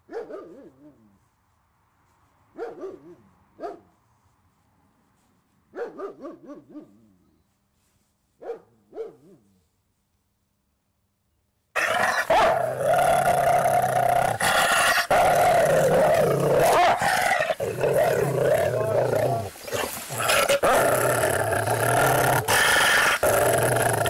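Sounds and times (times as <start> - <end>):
dog growling: 11.8 - 24.0.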